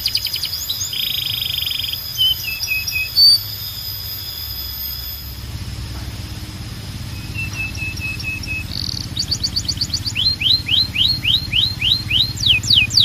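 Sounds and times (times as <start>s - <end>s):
canary singing: 0.0s - 13.0s
steady low hum: 0.0s - 13.0s.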